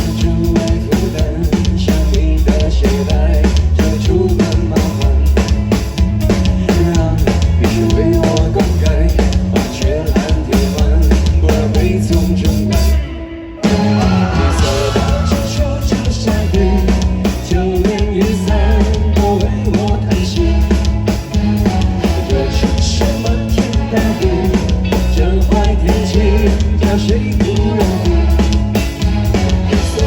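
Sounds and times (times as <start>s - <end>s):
pop-rock band playing: 0.0s - 30.0s.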